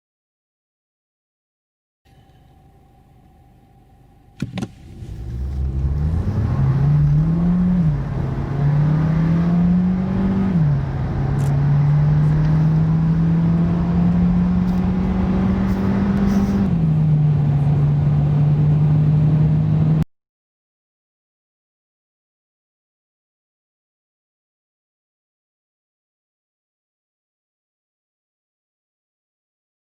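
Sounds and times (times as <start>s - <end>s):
car engine accelerating hard: 4.4s - 20.0s.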